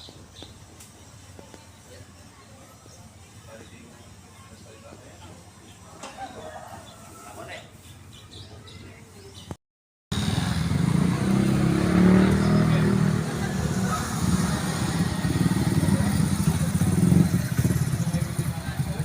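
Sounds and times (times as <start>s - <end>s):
motorcycle engine running: 10.1s - 19.0s.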